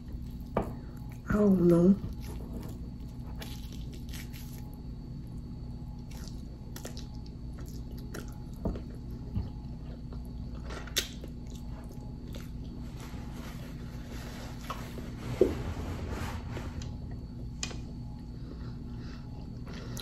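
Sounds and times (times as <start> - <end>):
steady low hum: 0.0 - 20.0
close-up chewing: 2.0 - 12.8.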